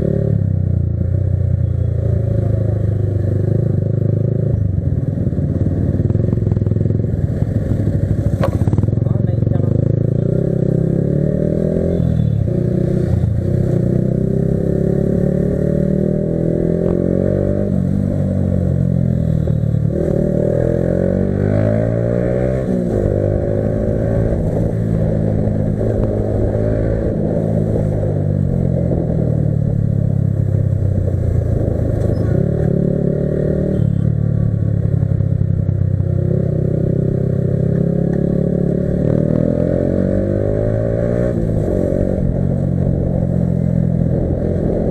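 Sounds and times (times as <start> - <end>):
motorbike engine revving through gears: 36.1 - 44.9.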